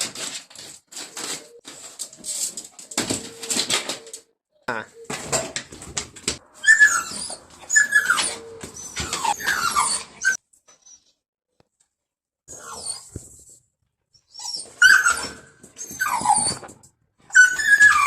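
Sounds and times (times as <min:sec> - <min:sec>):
dog whining: 0:06.4 - 0:11.2, 0:12.5 - 0:13.4, 0:14.2 - 0:18.0.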